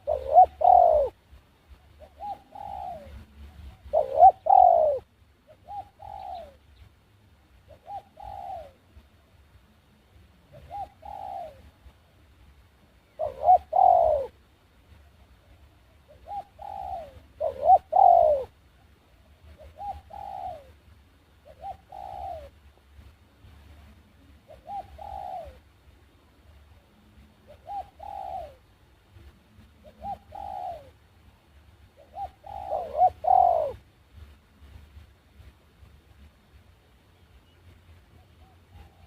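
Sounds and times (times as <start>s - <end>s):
dove cooing: 0.0s - 1.2s, 1.8s - 6.6s, 7.6s - 9.1s, 10.5s - 11.9s, 13.0s - 14.4s, 15.0s - 18.6s, 19.2s - 22.6s, 23.8s - 31.1s, 31.9s - 33.9s, 37.4s - 39.0s.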